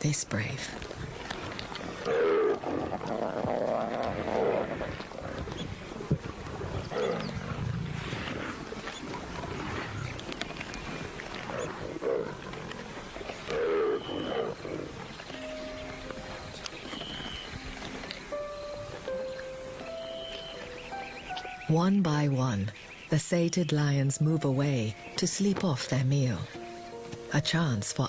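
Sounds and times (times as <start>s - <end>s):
lions growling: 1.0s - 18.2s.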